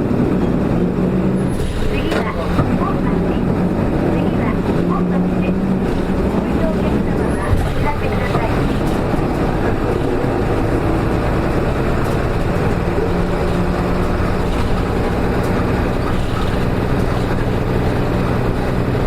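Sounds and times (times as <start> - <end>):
bus diesel engine hum: 0.0 - 19.0.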